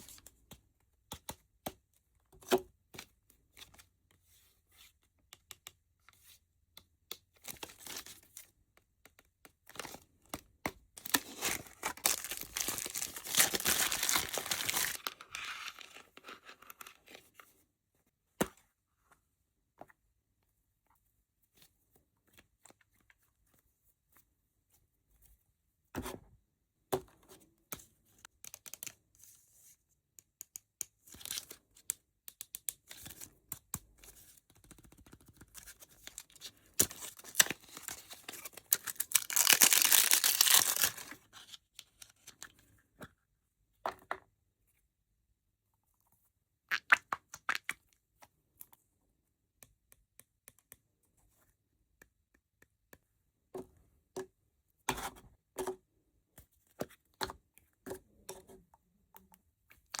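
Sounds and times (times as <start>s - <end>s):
packaging crinkling: 11.0s - 15.8s, 37.2s - 41.1s
packaging tearing: 11.1s - 15.1s, 38.7s - 41.1s.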